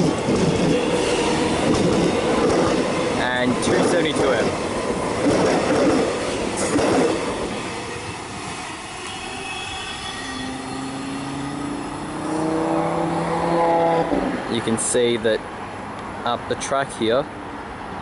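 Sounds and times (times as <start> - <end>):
electric train whine: 0.0 - 14.4
train running noise: 0.0 - 15.2.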